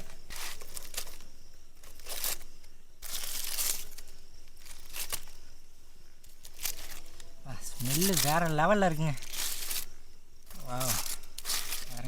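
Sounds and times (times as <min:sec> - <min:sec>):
wrapping tearing and crinkling: 0:03.0 - 0:05.4, 0:06.4 - 0:09.9, 0:10.5 - 0:12.0.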